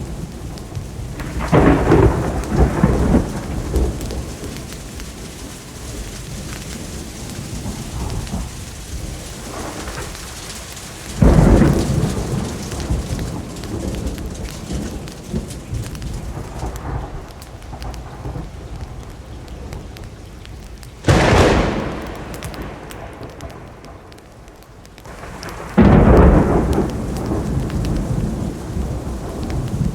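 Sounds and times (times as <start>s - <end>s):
steady rain: 0.0s - 29.9s
thunder claps: 0.0s - 29.9s.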